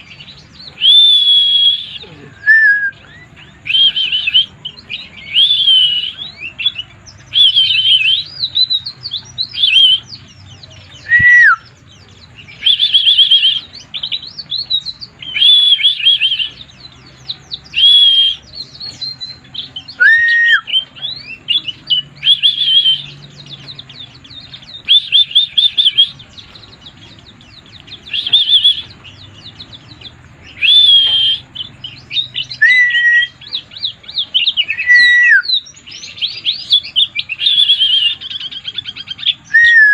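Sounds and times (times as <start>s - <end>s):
bird twittering: 0.0s - 39.9s
low whistled bird notes: 0.0s - 39.9s.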